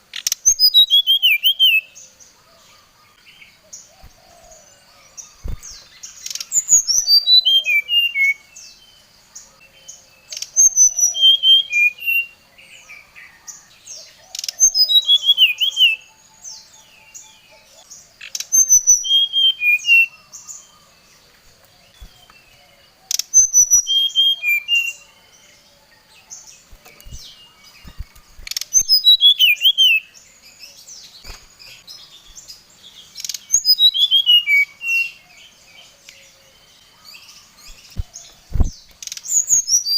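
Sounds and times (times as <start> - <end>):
bird whistled song: 0.1 - 2.0, 5.2 - 8.9, 9.9 - 13.7, 14.3 - 20.8, 23.1 - 25.6, 26.6 - 30.6, 33.2 - 35.5, 37.4 - 39.9.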